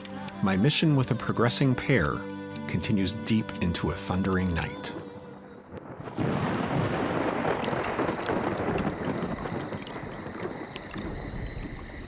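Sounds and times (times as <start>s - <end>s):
heavy rain: 5.6s - 12.0s
thunder rumbling: 5.7s - 12.0s.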